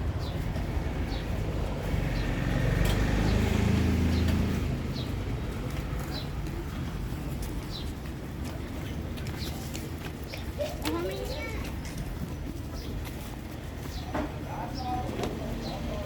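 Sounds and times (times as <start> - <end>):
vehicle engine passing: 0.0 - 6.2
traffic rumble: 0.0 - 16.0.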